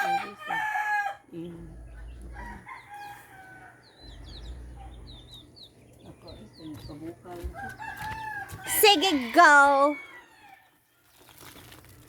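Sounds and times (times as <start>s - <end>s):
rooster crowing: 0.0s - 1.3s, 2.4s - 4.0s, 7.6s - 10.8s
small birds chirping: 0.2s - 11.5s.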